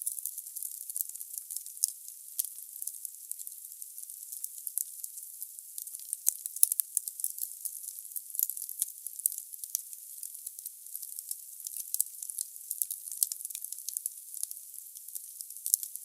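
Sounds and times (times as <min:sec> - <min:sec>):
wood fire crackling: 0:15.5 - 0:15.9.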